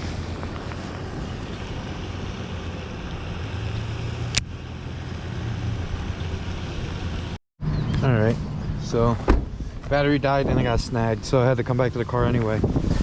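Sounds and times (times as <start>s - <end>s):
wind buffeting microphone: 7.8s - 13.0s.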